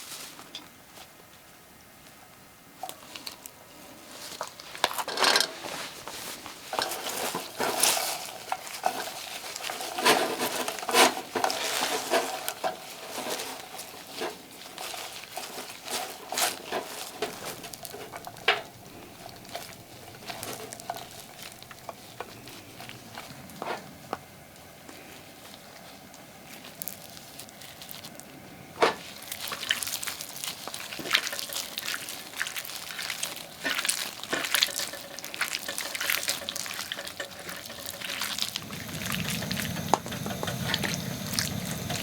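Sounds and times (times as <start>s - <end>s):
utensil scraping a pan: 4.8s - 24.0s, 30.8s - 42.0s
food sizzling faintly: 29.0s - 42.0s.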